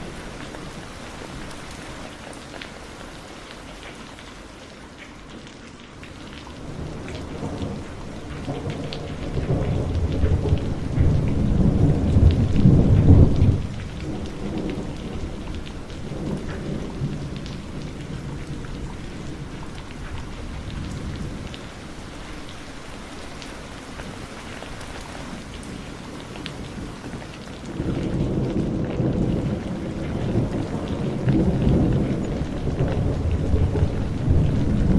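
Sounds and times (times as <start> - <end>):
heavy rain falling: 0.0 - 34.9
thunder rolling: 6.6 - 22.4, 27.7 - 34.9.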